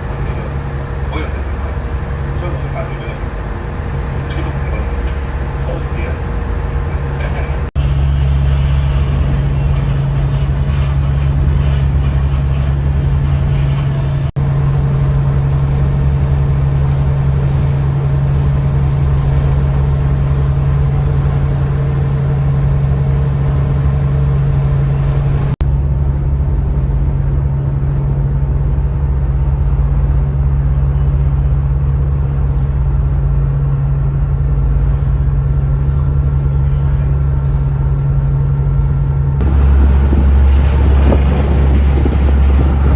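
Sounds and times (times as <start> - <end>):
diesel engines droning: 0.0 - 42.9.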